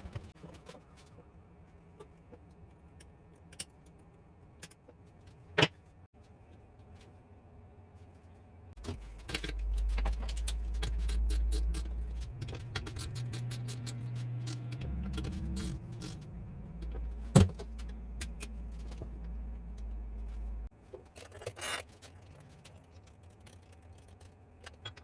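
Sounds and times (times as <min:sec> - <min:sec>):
low machine hum: 0:08.8 - 0:20.7.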